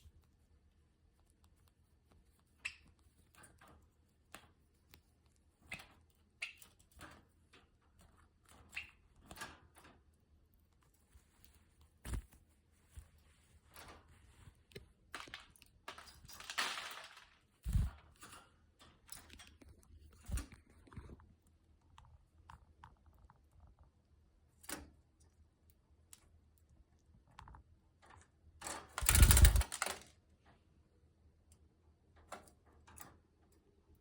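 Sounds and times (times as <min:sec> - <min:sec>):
bird moving with taps and rustles: 0:05.6 - 0:21.3, 0:27.3 - 0:30.2.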